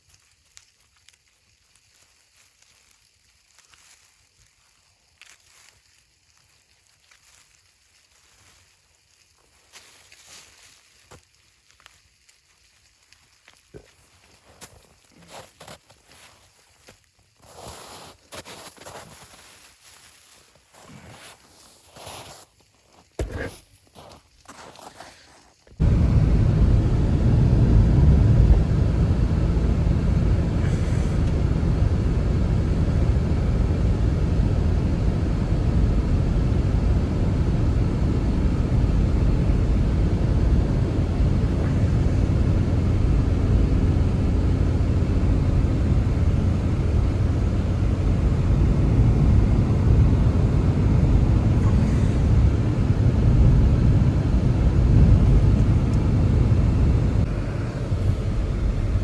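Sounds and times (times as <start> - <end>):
strong wind gusting: 25.8 - 59.0.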